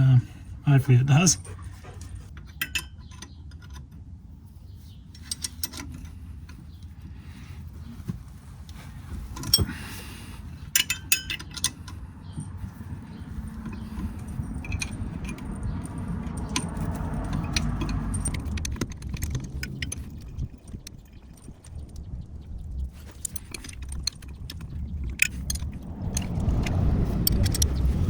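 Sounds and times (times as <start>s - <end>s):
metal tools clinking and rattling: 0.9s - 4.0s, 5.2s - 6.8s, 9.2s - 9.9s, 10.5s - 26.3s
steady low rumble: 6.0s - 28.0s
scattered clicks: 14.7s - 28.0s.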